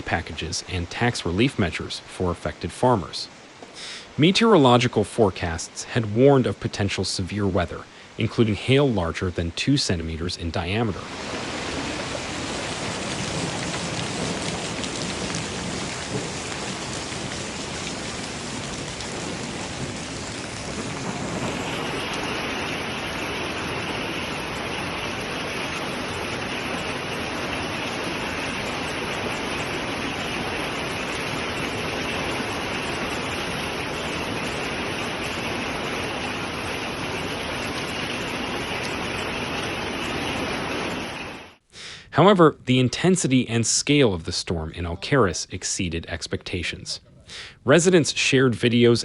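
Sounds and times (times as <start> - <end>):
hail and rain pelting down: 11.0 - 41.6.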